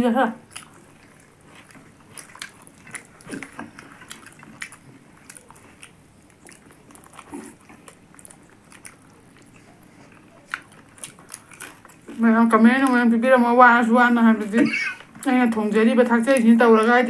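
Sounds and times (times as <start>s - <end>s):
chewing and lip smacking: 0.4s - 17.0s.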